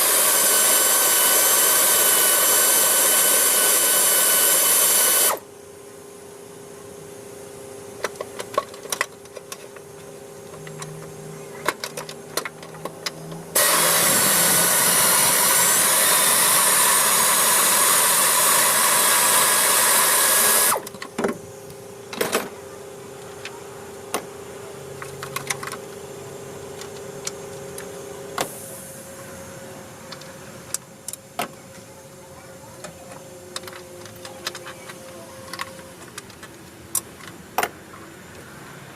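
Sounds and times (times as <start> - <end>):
power tool running: 0.0 - 5.5, 12.4 - 20.9.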